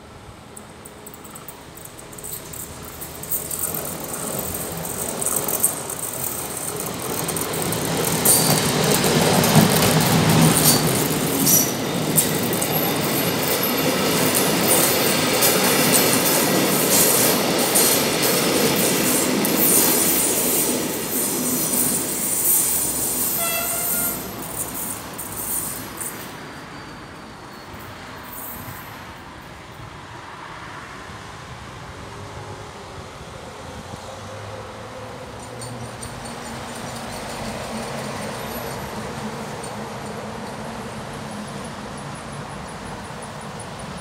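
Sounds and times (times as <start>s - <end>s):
passenger train passing: 0.0s - 44.0s
wheels clacking over rail joints: 0.5s - 26.4s, 35.2s - 44.0s.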